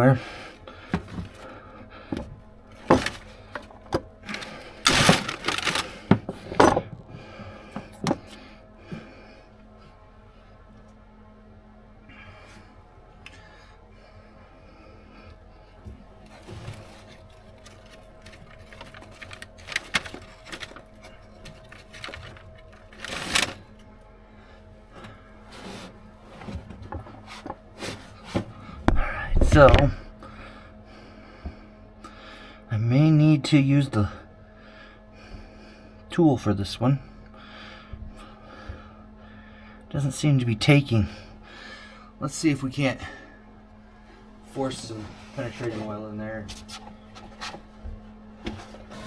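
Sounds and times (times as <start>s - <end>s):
faint steady hum: 0.0s - 49.0s
scraping rustle: 4.3s - 6.0s, 16.3s - 23.7s, 25.4s - 28.5s, 44.7s - 47.7s.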